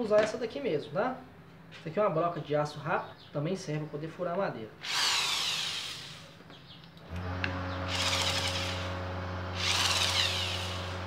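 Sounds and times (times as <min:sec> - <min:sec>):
drill chuck rasping: 0:04.8 - 0:06.3, 0:07.1 - 0:09.0, 0:09.6 - 0:11.0.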